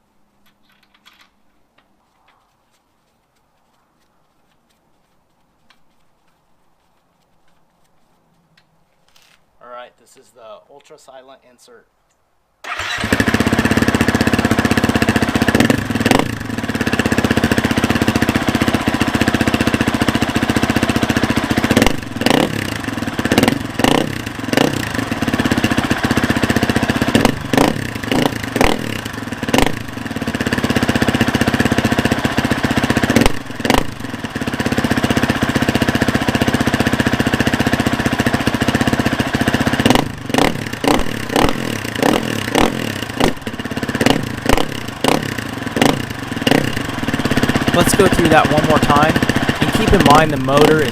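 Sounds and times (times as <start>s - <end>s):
dirt bike engine idling and revving: 12.7s - 50.9s.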